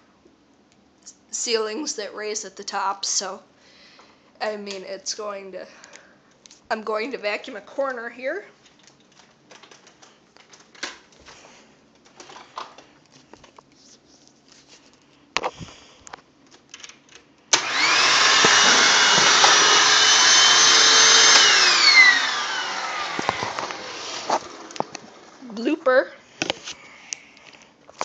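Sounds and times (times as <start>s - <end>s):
vacuum attachments clicking: 15.4s - 25.3s
vacuum cleaner motor whine: 17.5s - 25.4s.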